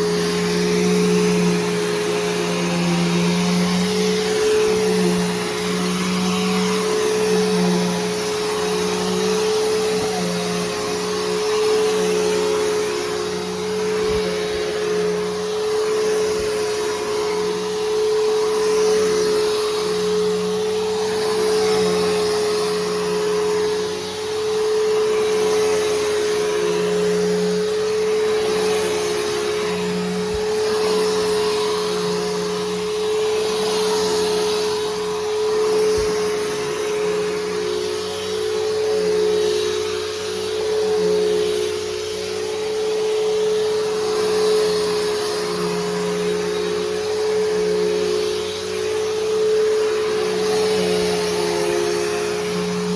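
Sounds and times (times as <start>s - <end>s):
upright vacuum motor whine: 0.0s - 52.9s.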